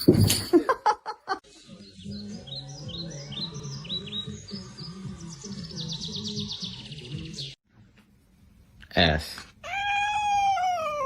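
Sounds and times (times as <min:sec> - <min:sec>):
songbird chirping: 0:01.4 - 0:07.6.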